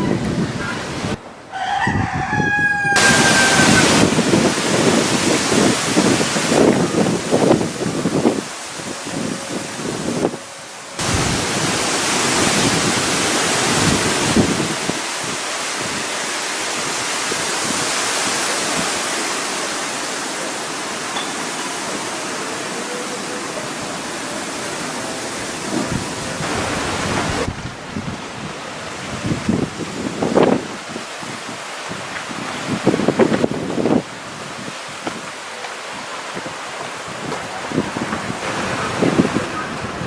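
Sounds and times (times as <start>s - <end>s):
wind gusting on microphone: 0.0s - 19.2s, 23.7s - 35.4s, 36.4s - 40.0s
rushing wind and rain: 0.0s - 40.0s.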